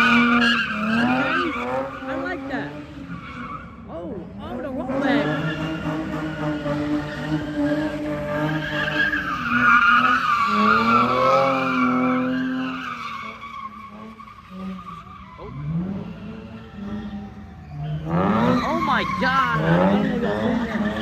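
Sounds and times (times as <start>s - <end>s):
car engine revving: 0.0s - 21.0s
tyres squealing: 4.9s - 15.8s, 17.4s - 21.0s.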